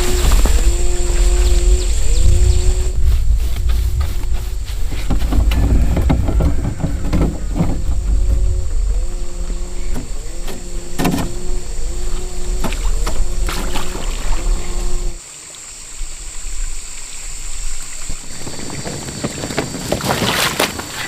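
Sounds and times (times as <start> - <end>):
knocks and clicks: 3.6 - 9.1.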